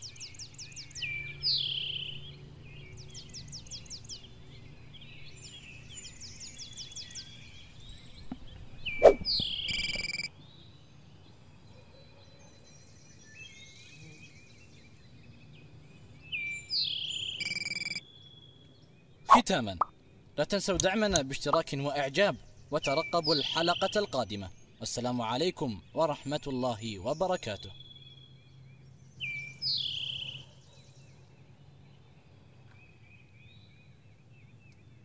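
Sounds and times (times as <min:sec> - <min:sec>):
outdoor background noise: 0:00.0 - 0:35.0
falling bird chirp: 0:07.7 - 0:10.3, 0:16.8 - 0:18.1
bird trills: 0:08.8 - 0:10.3, 0:16.7 - 0:18.6
brief bright tone: 0:09.0 - 0:10.3, 0:17.4 - 0:18.0.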